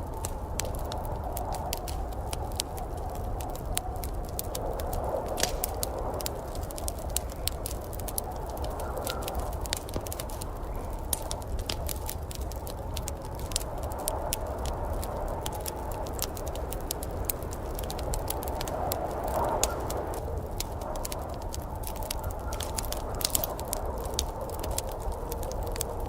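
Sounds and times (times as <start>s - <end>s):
wood fire crackling in fireplace: 0.0s - 26.0s.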